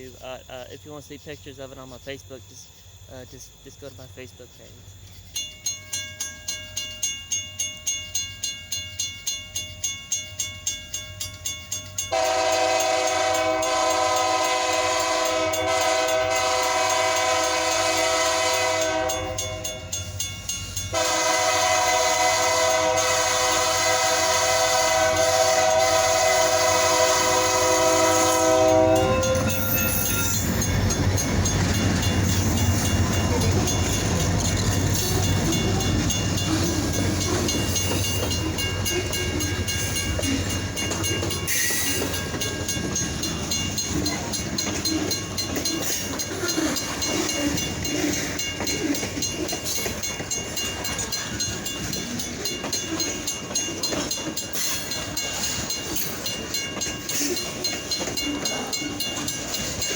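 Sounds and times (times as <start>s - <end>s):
train passing: 0.0s - 59.9s
locomotive air horn: 12.1s - 19.8s, 20.9s - 30.6s.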